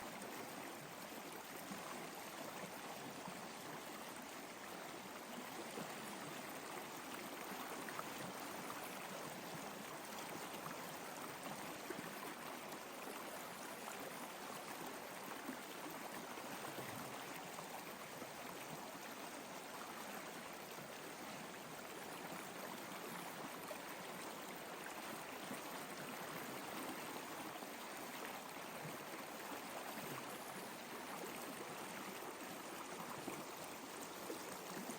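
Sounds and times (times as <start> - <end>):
flowing water: 0.0 - 34.9.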